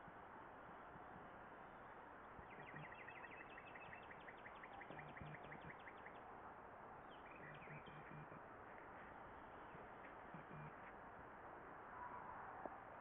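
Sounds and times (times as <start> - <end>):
bird chirping: 2.4 - 6.3, 7.1 - 8.5, 9.3 - 10.9.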